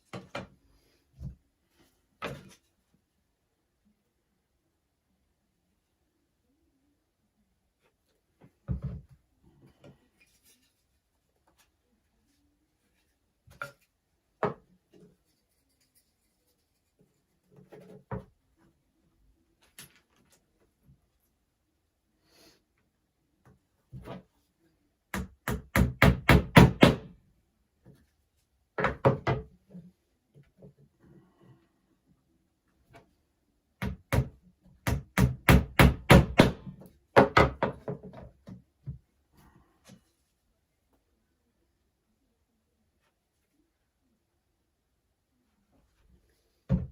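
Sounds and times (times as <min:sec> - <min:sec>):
hammer knocking on wooden frame: 0:25.2 - 0:27.1, 0:33.8 - 0:36.6.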